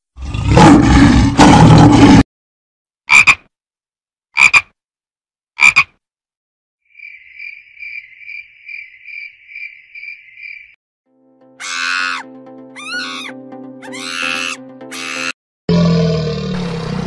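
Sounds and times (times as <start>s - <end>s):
frog croaking: 3.1s - 3.5s, 4.4s - 4.8s, 5.6s - 6.0s.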